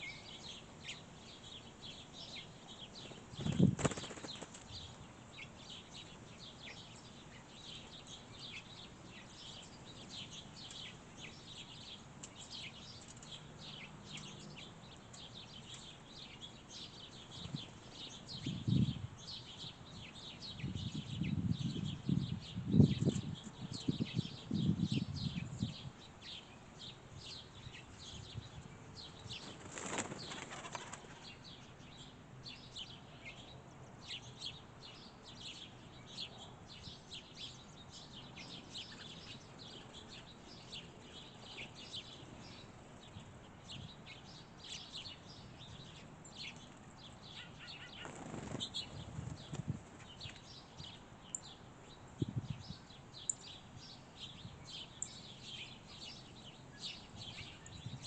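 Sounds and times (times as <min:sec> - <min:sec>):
small songbirds chirping: 0:00.0 - 0:58.0
bird wingbeats: 0:03.0 - 0:04.9, 0:29.3 - 0:31.4, 0:47.8 - 0:50.4.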